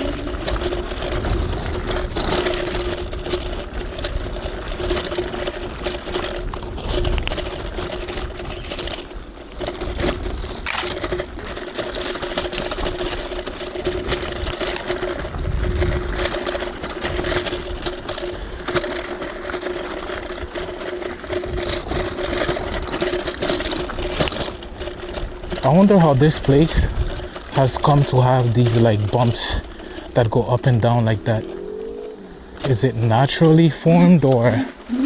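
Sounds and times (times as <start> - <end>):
wind noise: 0.0 - 9.2, 13.9 - 18.7, 26.4 - 27.4
clicks and rattles: 0.0 - 31.5
tyres rumbling: 0.0 - 35.0.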